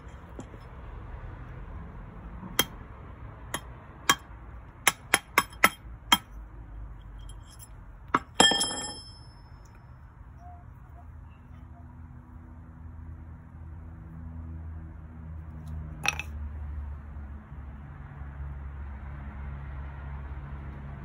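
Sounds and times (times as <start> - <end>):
hammer tapping metal: 2.5 - 2.8, 3.5 - 6.4, 7.2 - 9.5, 16.0 - 16.3
metal ringing: 4.9 - 6.4, 7.0 - 9.8, 16.0 - 16.3.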